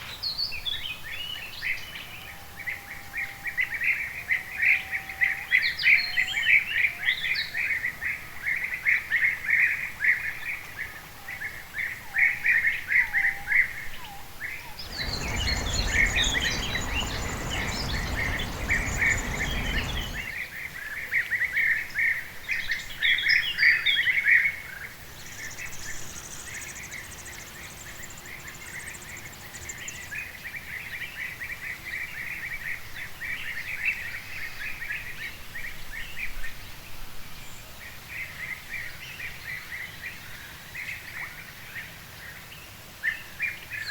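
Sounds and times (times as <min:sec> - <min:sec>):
birds chirping: 0:14.8 - 0:20.4
lower whistled bird notes: 0:14.8 - 0:20.4
steady rushing noise: 0:14.8 - 0:20.4.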